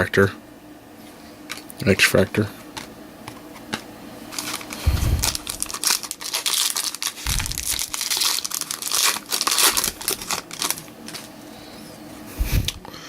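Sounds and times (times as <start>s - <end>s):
foil wrapper tearing and crinkling: 3.7s - 11.4s.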